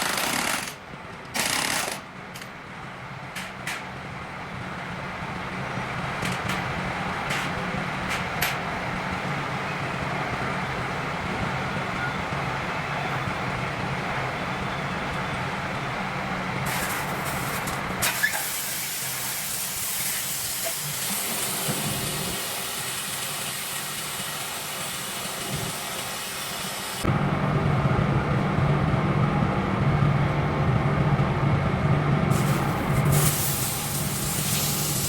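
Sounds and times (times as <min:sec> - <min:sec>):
low machine hum: 0:27.0 - 0:35.0
compressed air hissing: 0:32.3 - 0:35.0.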